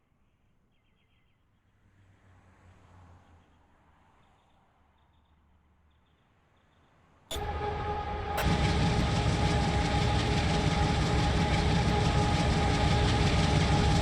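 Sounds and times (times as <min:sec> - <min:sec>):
thin steady whine: 0:07.3 - 0:14.0
train wheels rumbling on rail: 0:07.3 - 0:14.0.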